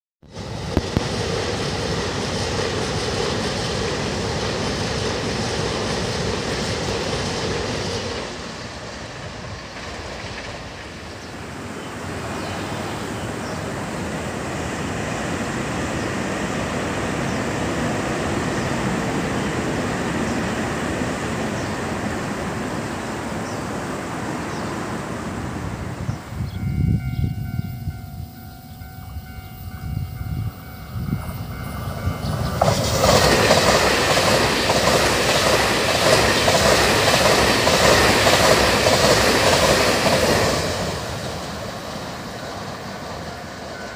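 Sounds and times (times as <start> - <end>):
train passing over bridge: 0.2 - 43.9.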